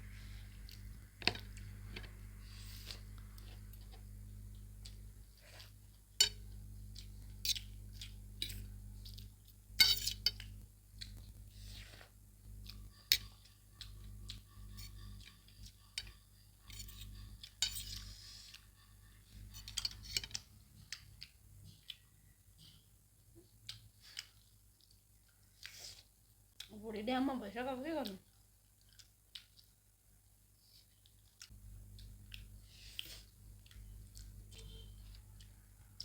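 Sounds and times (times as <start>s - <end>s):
low steady hum: 0.0s - 25.5s, 31.3s - 36.0s
utensils clinking on plates: 9.8s - 10.4s, 16.7s - 18.1s.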